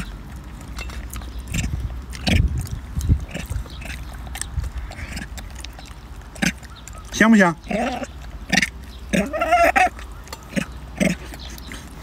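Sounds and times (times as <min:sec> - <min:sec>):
wet chewing and lip-smacking: 0:00.0 - 0:12.0
dull low thumps: 0:01.3 - 0:05.1.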